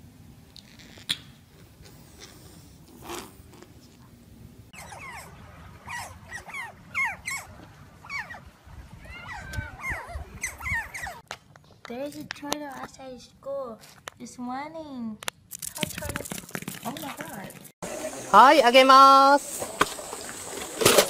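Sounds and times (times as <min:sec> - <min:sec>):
otters chirping: 0:04.8 - 0:11.2.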